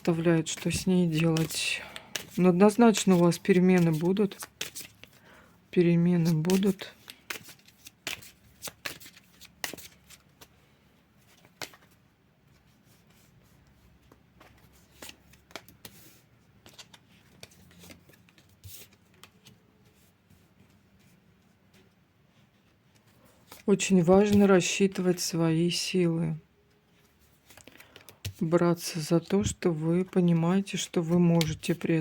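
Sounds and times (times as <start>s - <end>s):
cards being shuffled: 0.0s - 5.2s, 6.0s - 10.6s, 11.2s - 12.0s, 14.0s - 20.0s, 22.9s - 25.2s, 27.0s - 29.4s, 30.0s - 32.0s.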